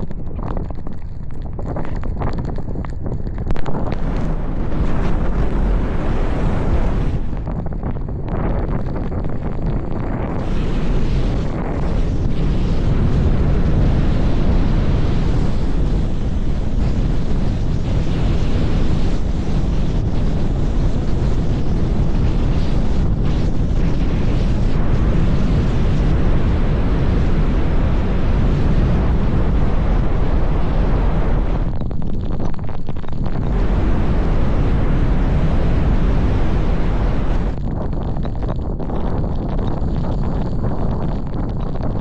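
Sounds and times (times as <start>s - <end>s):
strong wind buffeting microphone: 0.0s - 42.0s.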